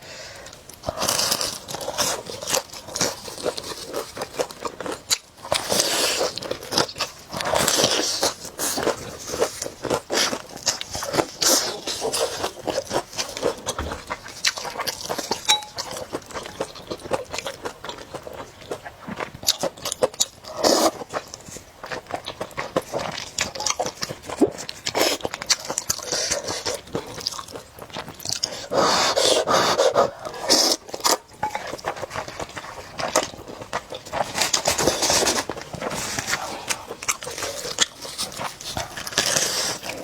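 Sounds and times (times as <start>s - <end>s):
crunchy bites and chewing: 30.1s - 40.0s.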